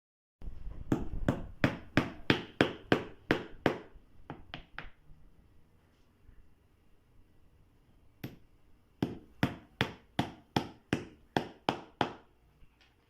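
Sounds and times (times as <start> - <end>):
hammer striking nails: 0.9 - 4.9, 8.2 - 12.3.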